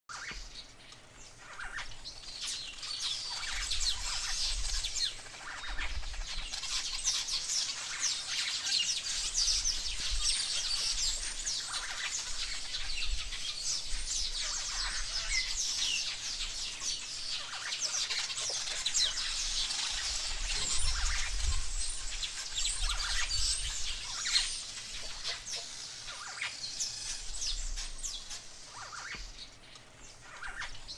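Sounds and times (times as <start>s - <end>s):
small birds chirping: 0.1s - 30.9s.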